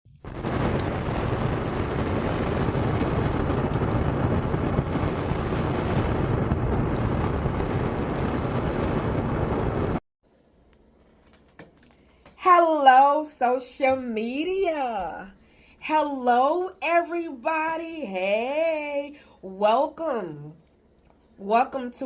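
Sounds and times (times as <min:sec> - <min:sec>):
loud rushing noise with rumble: 0:00.2 - 0:10.0.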